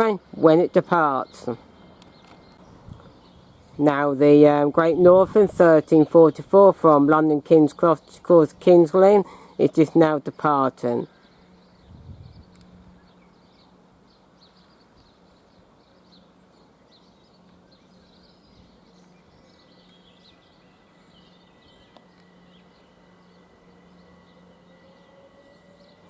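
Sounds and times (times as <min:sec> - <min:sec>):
small birds chirping: 0:00.0 - 0:26.0
faint rising whine: 0:11.0 - 0:26.0.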